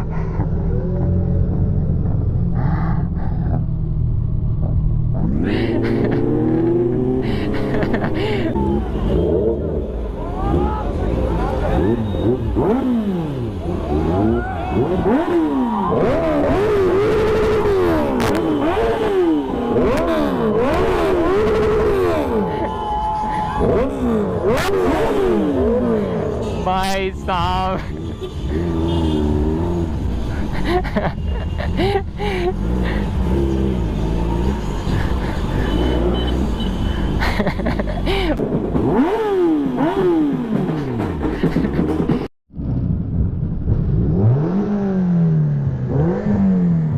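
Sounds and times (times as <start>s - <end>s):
motorcycle engine revving: 0.0s - 22.7s, 23.4s - 30.6s, 32.5s - 37.2s, 38.4s - 46.9s.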